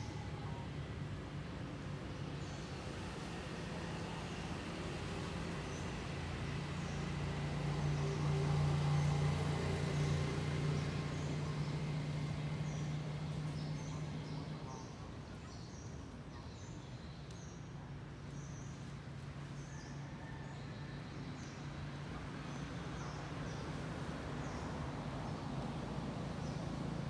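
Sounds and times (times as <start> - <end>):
motor vehicle passing: 6.0 - 14.6.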